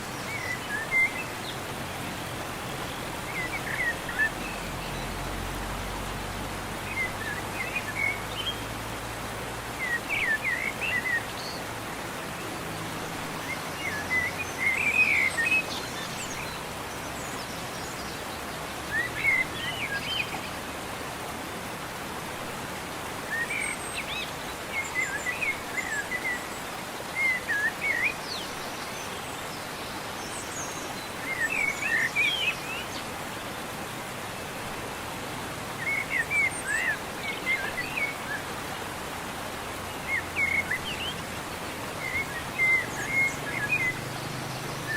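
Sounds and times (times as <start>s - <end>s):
outdoor background hiss: 0.0s - 44.9s
small birds chirping: 23.3s - 44.9s.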